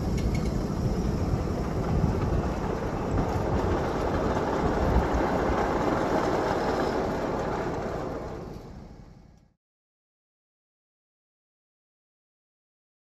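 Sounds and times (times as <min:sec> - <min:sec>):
train wheels rumbling on rails: 0:00.0 - 0:09.6.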